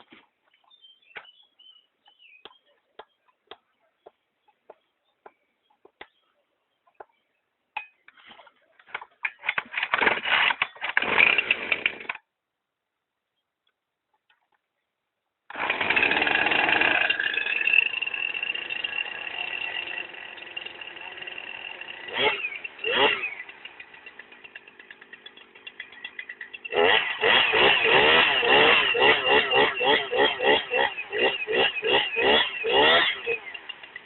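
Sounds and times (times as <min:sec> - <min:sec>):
chainsaw starting and idling: 0:09.2 - 0:12.3, 0:15.5 - 0:34.0.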